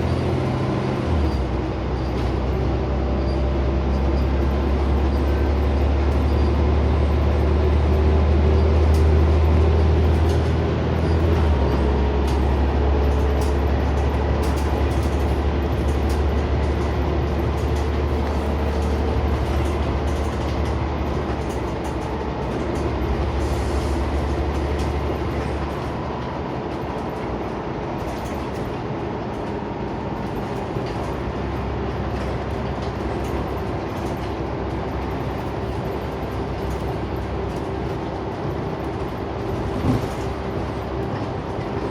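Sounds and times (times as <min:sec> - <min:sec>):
bus engine drone: 0:00.0 - 0:41.9
road noise: 0:00.0 - 0:41.9.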